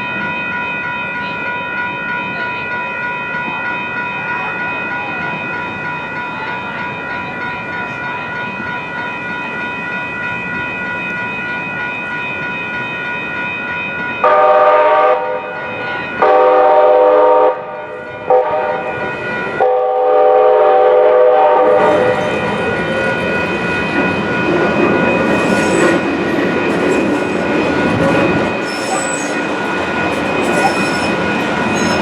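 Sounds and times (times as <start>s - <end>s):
train wheels rumbling on rails: 2.2s - 32.0s
train horn chord: 14.2s - 15.6s, 16.2s - 19.0s, 19.6s - 21.9s.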